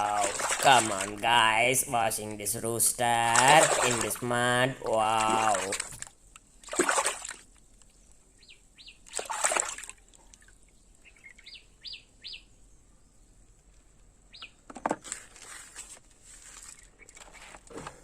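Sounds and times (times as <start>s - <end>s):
water sloshing and splashing: 0.0s - 7.9s, 9.0s - 11.4s.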